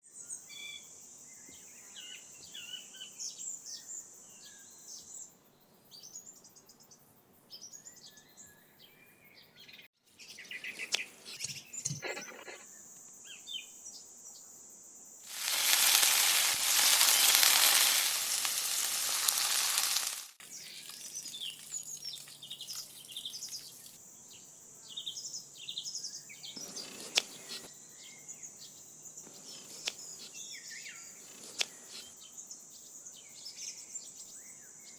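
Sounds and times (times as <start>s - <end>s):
food sizzling in frying: 15.3s - 23.9s
birds chirping: 15.3s - 24.0s.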